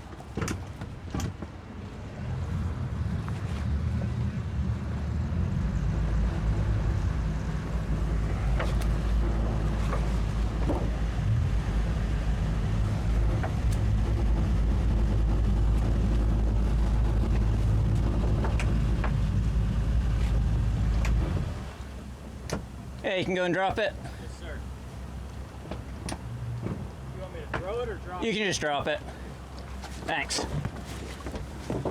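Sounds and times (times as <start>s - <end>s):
outboard motors running: 0.0s - 31.9s
water along a hull: 0.0s - 31.9s
faint knocks: 25.6s - 27.9s.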